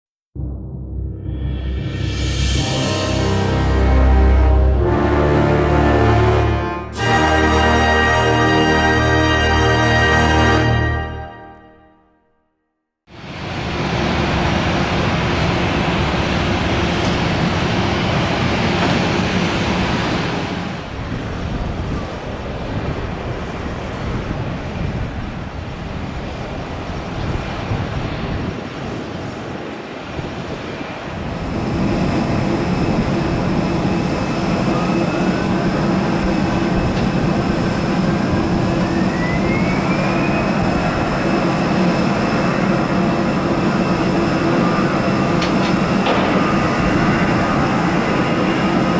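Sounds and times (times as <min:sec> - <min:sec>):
engine whine rising in pitch: 0:00.4 - 0:11.7, 0:31.1 - 0:48.9
jet engines roaring: 0:01.2 - 0:11.4, 0:13.1 - 0:48.9.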